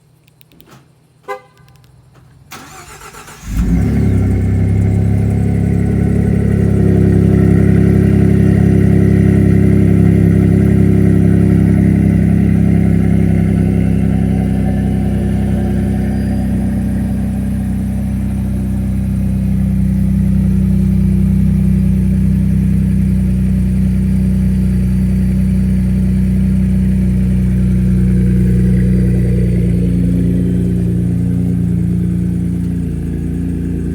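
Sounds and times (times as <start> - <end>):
car engine idling loudly: 2.6 - 33.9
short beep: 15.1 - 17.9.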